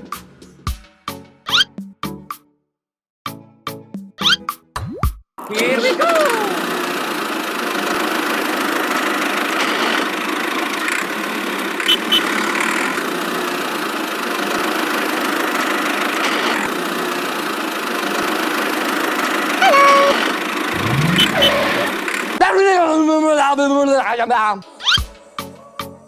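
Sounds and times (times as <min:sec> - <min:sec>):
small motor running: 0:06.0 - 0:22.4.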